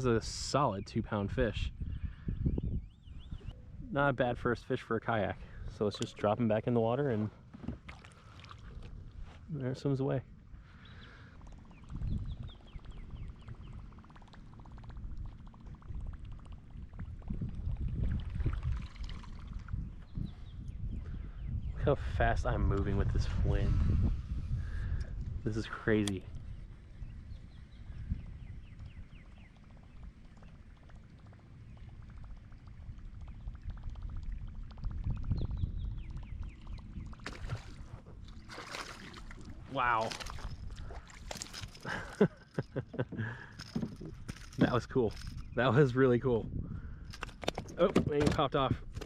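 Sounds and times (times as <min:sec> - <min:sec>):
wind rumbling on microphone: 0:00.0 - 0:49.0
water lapping against kayak hull: 0:07.2 - 0:09.5, 0:10.4 - 0:20.6, 0:26.1 - 0:45.5
wind gusts rumbling: 0:14.9 - 0:29.0.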